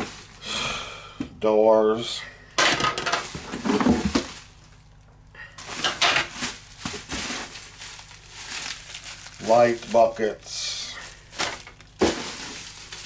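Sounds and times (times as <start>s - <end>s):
packaging rustling: 0.0s - 0.4s, 3.0s - 10.2s, 11.0s - 13.0s
plastic parts clattering: 2.6s - 4.5s, 5.6s - 10.1s, 11.1s - 13.0s.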